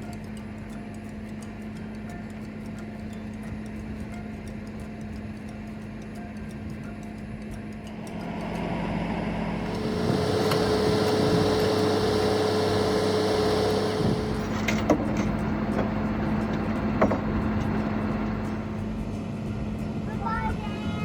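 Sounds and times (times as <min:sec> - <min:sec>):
tow truck engine running: 0:07.9 - 0:19.3
steady whine: 0:07.9 - 0:20.1.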